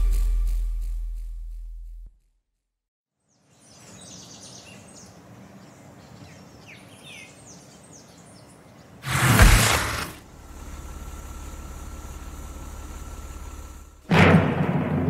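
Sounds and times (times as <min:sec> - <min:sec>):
low outdoor background noise: 0:03.2 - 0:09.0
birds chirping: 0:03.3 - 0:09.0.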